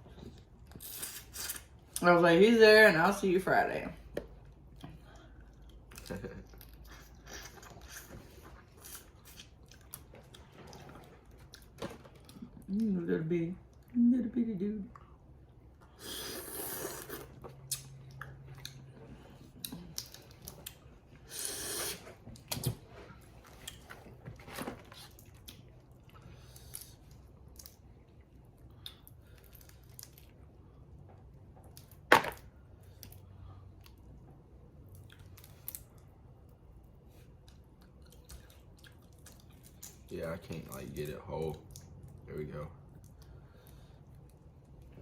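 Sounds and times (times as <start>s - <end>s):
chewing: 4.3s - 12.7s, 14.9s - 31.9s, 37.0s - 42.2s.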